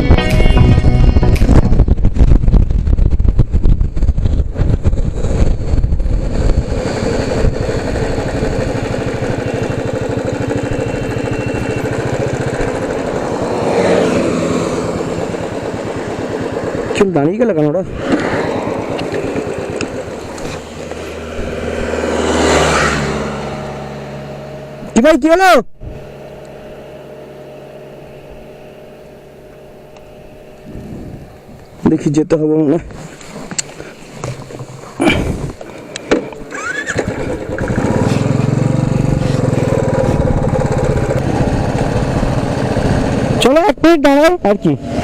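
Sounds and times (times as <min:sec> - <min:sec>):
motorcycle engine at low revs: 0:00.0 - 0:45.0
road traffic: 0:00.0 - 0:45.0
vehicle passing by: 0:06.3 - 0:24.9, 0:36.6 - 0:43.4.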